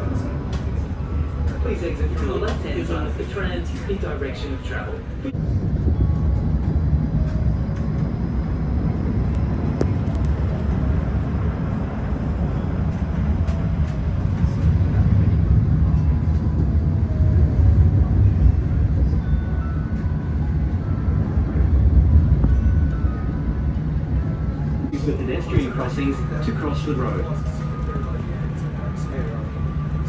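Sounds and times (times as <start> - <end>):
tram rumbling with faint whine: 0.0 - 30.0.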